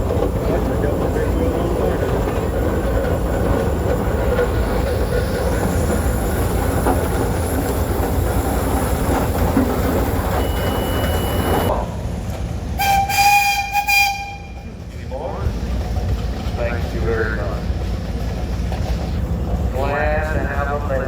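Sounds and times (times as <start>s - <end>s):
engines rumbling: 0.0s - 13.2s, 14.2s - 21.0s
steam whistle blast: 12.8s - 14.6s.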